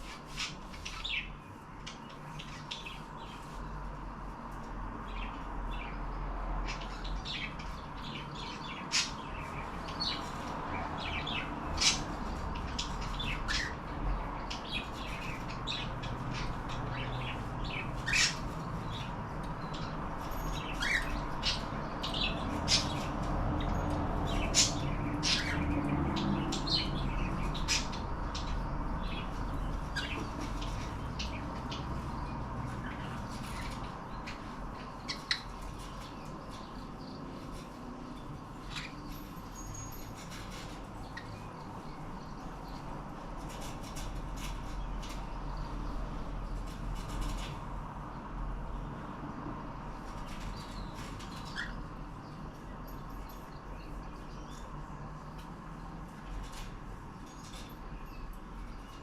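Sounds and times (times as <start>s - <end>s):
cockatiels chirping and squawking: 0.0s - 3.6s, 6.6s - 37.8s, 38.6s - 41.5s, 50.2s - 51.9s.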